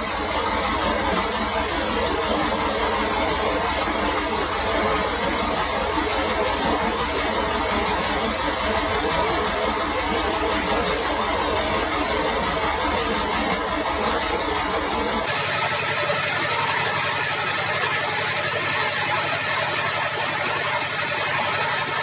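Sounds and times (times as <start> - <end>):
sawmill machinery droning: 15.3 - 22.0.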